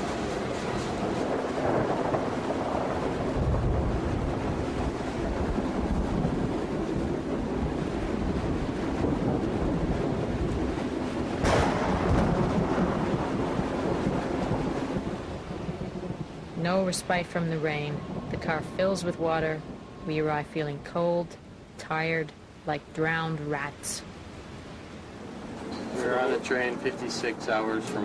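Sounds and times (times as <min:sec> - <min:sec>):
freight train rumbling: 0:00.0 - 0:20.7
rain: 0:00.0 - 0:28.0
wind: 0:00.0 - 0:28.0
sudden sharp crash: 0:11.4 - 0:12.5.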